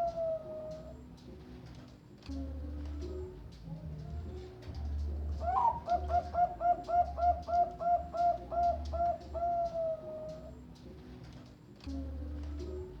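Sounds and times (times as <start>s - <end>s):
dove cooing song: 0.0s - 13.0s.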